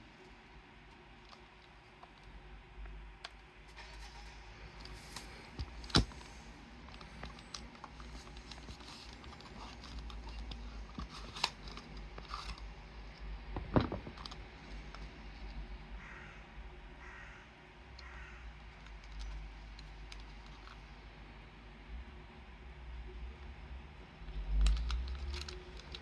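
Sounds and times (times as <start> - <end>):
handling clicks and scrapes: 0.2 - 15.6, 18.6 - 20.9, 24.3 - 26.0.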